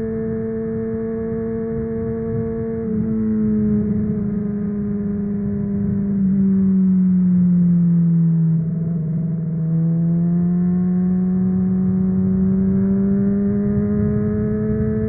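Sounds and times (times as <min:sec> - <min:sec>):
motorcycle engine revving: 0:08.6 - 0:15.0.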